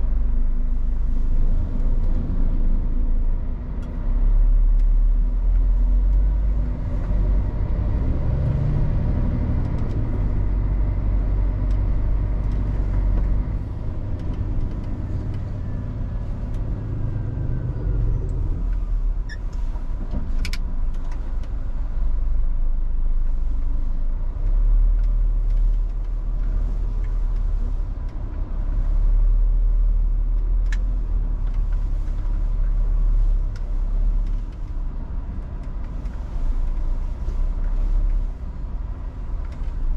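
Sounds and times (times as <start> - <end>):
truck diesel engine rumble: 0.0 - 39.9.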